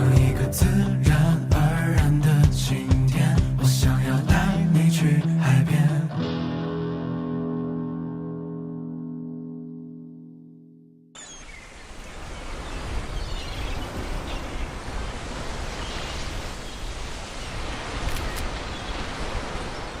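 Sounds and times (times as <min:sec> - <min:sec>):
ocean waves washing on shore: 0:11.2 - 0:20.0.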